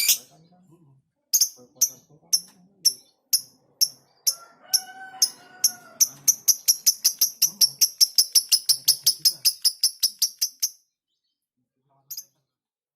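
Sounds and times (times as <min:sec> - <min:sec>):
lovebird chattering chirps: 0:00.0 - 0:00.3, 0:01.3 - 0:10.8.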